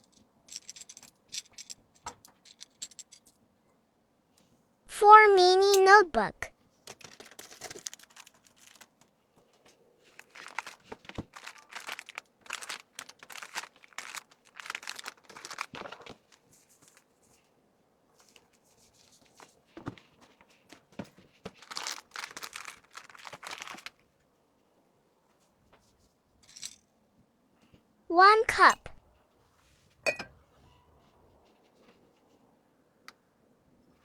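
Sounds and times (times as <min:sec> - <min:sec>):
plastic packaging crinkling: 0:06.9 - 0:09.1, 0:10.0 - 0:17.0, 0:21.4 - 0:24.0.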